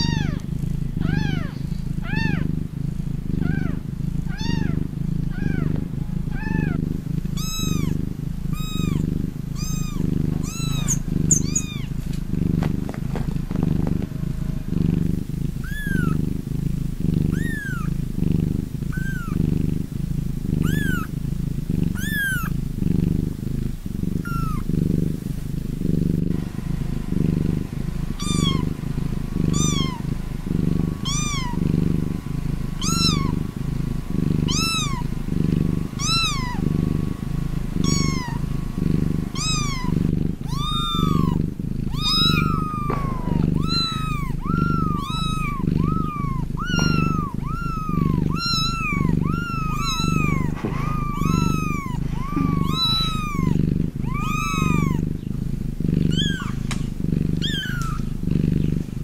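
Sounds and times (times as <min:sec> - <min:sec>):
cat purring: 0:00.0 - 0:59.0
high-pitched mewing: 0:09.6 - 0:11.9, 0:17.3 - 0:17.9, 0:18.9 - 0:19.4, 0:20.6 - 0:21.1, 0:22.0 - 0:22.5, 0:24.2 - 0:24.6, 0:37.8 - 0:38.4, 0:39.3 - 0:55.0.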